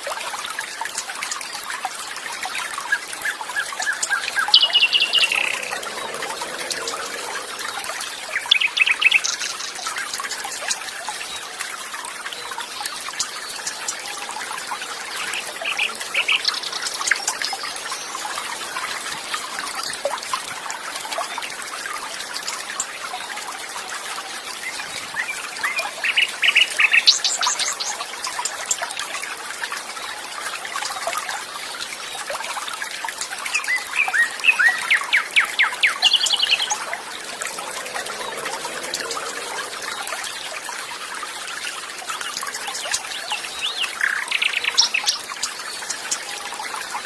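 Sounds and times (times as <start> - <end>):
water trickling: 0.0 - 47.0
birds chirping in trills: 3.0 - 10.8, 13.1 - 18.8, 33.6 - 41.0.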